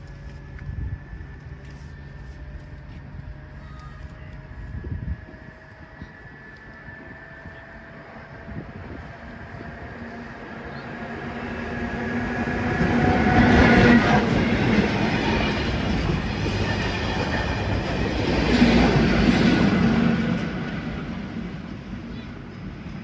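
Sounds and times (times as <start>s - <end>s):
train passing: 0.0s - 23.0s.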